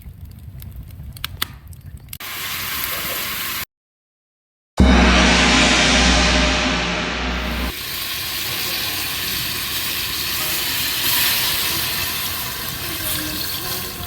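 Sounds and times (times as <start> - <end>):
food sizzling over campfire: 2.2 - 3.6, 7.9 - 14.0.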